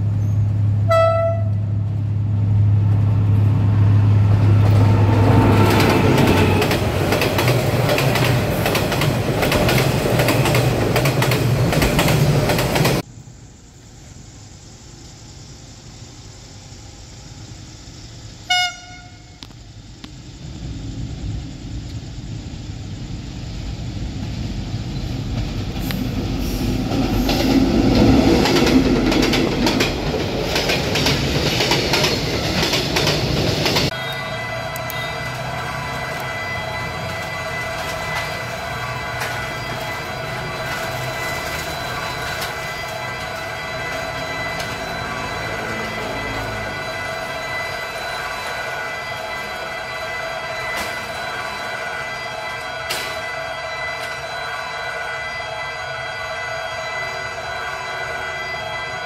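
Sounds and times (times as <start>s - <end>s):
wheels rumbling on rails: 0.0s - 13.1s, 17.4s - 54.7s
diesel train rumbling: 0.0s - 59.0s
train horn blast: 0.8s - 1.8s, 18.4s - 19.5s, 33.9s - 59.0s.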